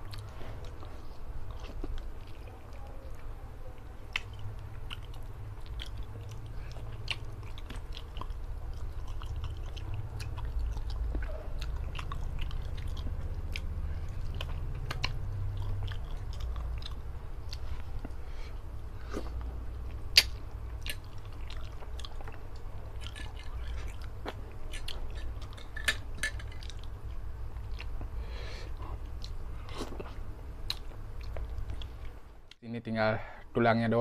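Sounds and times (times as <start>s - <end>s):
man chewing food: 0.0s - 32.6s
steady low hum: 0.0s - 34.0s
wet mouth clicks and smacks: 20.1s - 21.9s.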